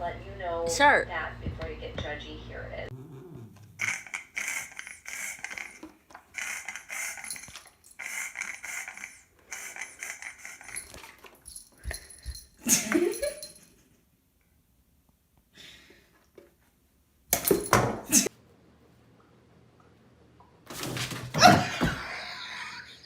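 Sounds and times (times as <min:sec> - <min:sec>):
loud rising animal cry: 0:02.9 - 0:04.2
pet animal calling: 0:02.9 - 0:05.2.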